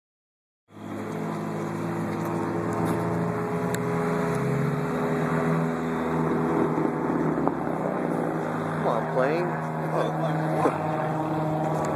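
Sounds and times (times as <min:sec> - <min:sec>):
car engine droning: 0:00.7 - 0:11.9.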